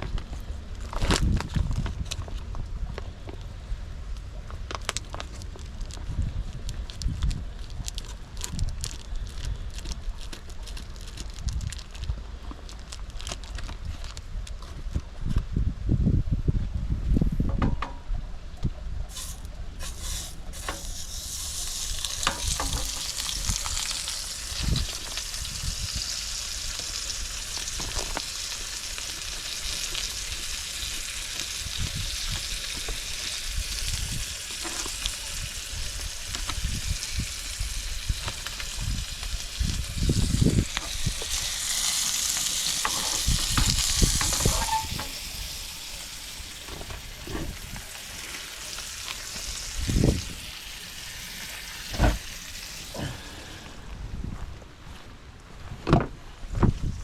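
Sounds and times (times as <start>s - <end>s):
food sizzling in frying pan: 19.1s - 53.1s.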